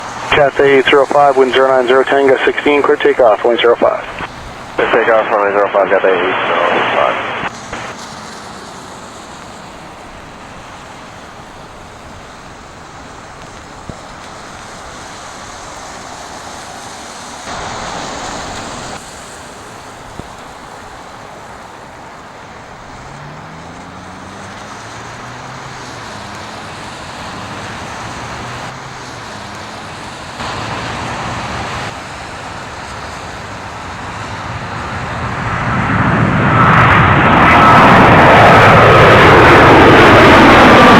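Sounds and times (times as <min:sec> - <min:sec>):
jet engines at takeoff: 0:00.0 - 0:40.9.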